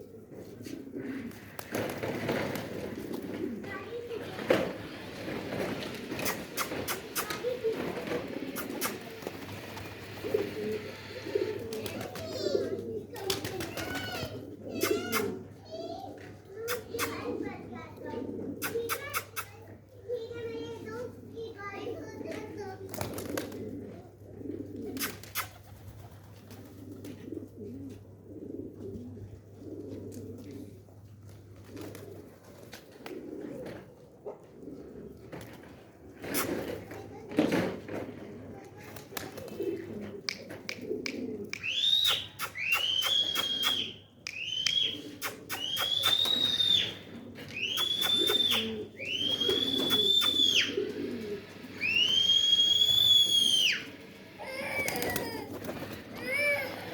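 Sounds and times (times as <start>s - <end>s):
pigeons cooing: 0.0s - 56.9s
sharp clicks and taps: 40.2s - 46.4s.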